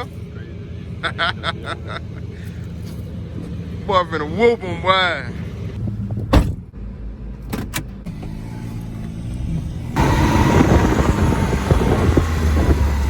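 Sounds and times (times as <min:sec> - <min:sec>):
diesel truck engine idling: 0:00.0 - 0:05.8, 0:07.9 - 0:13.0
rush of engine and wind noise: 0:07.4 - 0:13.0.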